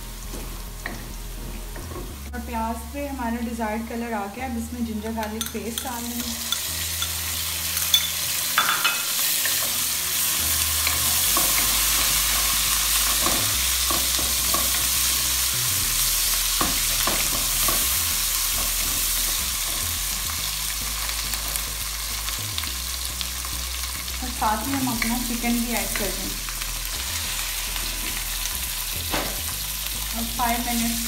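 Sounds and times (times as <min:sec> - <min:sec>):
onions sizzling in hot oil: 0:00.0 - 0:31.0
wooden spoon knocking on pan: 0:16.6 - 0:17.9, 0:29.1 - 0:29.5.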